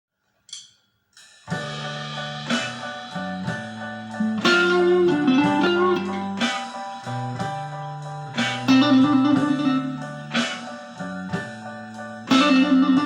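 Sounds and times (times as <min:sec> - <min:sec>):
clean electric guitar notes: 0:04.1 - 0:06.6, 0:08.3 - 0:10.7, 0:12.3 - 0:13.0.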